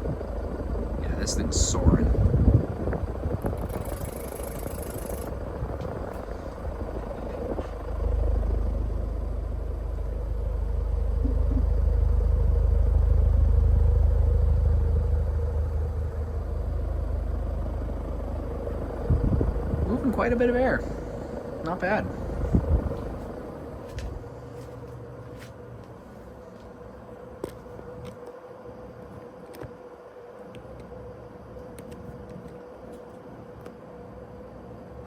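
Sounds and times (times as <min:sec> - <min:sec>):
wind buffeting microphone: 0:00.0 - 0:09.0, 0:15.4 - 0:24.3
fan airflow rushing: 0:00.0 - 0:26.5
ceiling fan motor hum: 0:00.0 - 0:35.0.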